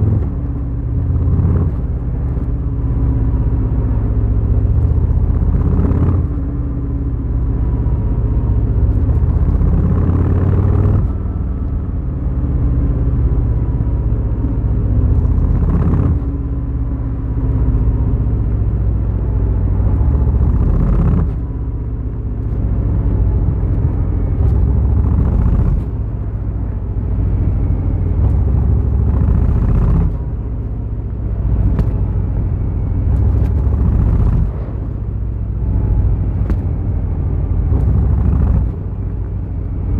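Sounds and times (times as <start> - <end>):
motorcycle engine running: 14.8 - 17.4, 23.2 - 30.7, 31.4 - 39.9.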